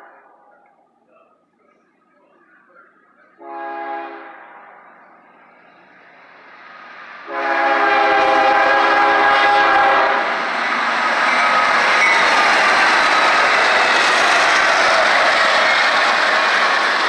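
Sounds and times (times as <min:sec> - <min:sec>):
locomotive air horn: 0:03.4 - 0:04.6, 0:07.2 - 0:10.3
wheels on rail: 0:04.2 - 0:17.0
locomotive engines running: 0:10.2 - 0:17.0.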